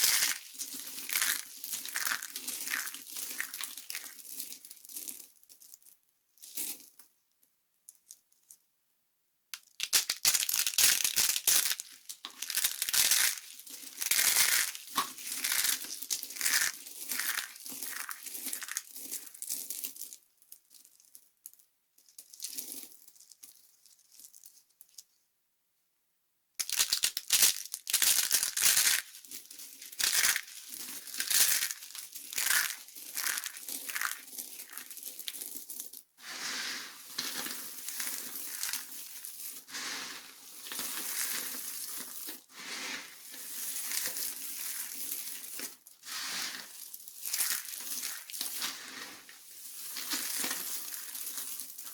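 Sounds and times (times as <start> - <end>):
soap crackling and crunching: 0.0 - 5.7, 9.6 - 19.8, 26.6 - 35.9, 37.1 - 42.4, 43.2 - 51.9.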